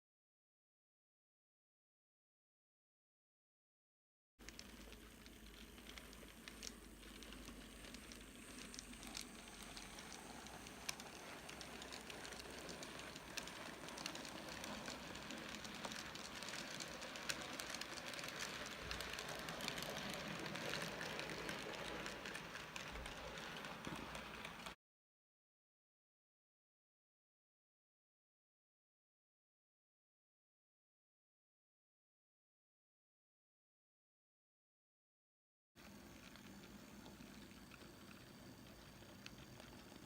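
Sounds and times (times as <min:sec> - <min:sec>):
model train running on track: 0:04.4 - 0:24.8, 0:35.8 - 0:40.0.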